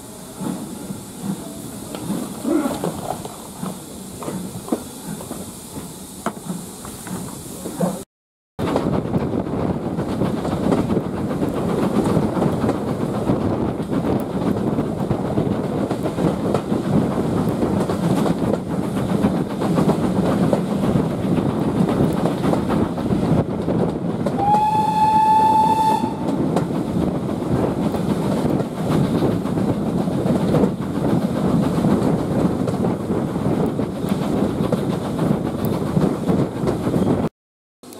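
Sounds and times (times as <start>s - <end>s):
steam train rumbling: 0.0s - 37.9s
faint rail clatter: 0.3s - 8.0s, 8.6s - 37.9s
steam whistle: 24.4s - 26.3s.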